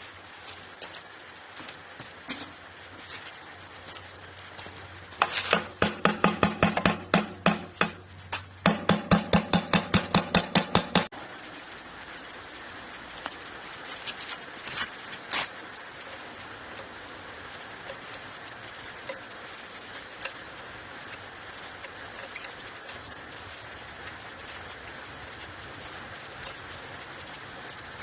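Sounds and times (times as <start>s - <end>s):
hammer striking metal: 5.2s - 8.0s, 8.6s - 11.1s.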